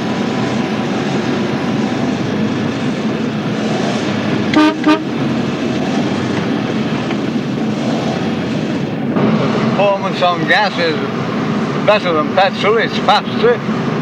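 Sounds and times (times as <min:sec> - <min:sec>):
car engine running: 0:00.0 - 0:14.0
car horn toots: 0:04.5 - 0:05.2.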